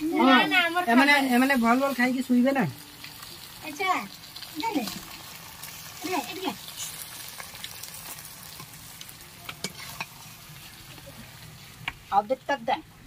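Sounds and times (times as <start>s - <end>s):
food sizzling in a metal pan: 0.0s - 13.0s
metal spatula scraping a pan: 9.4s - 10.8s.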